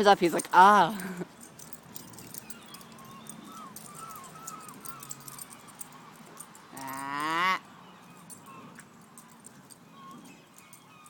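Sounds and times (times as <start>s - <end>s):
soft dog noises: 1.3s - 7.0s.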